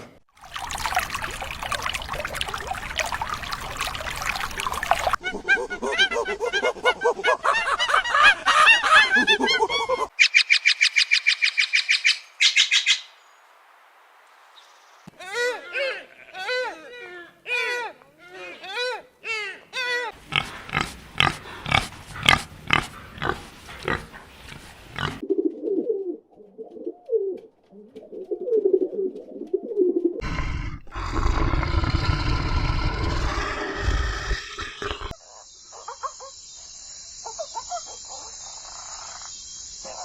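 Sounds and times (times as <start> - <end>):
low grunting calls: 0.5 - 5.2, 30.2 - 35.2.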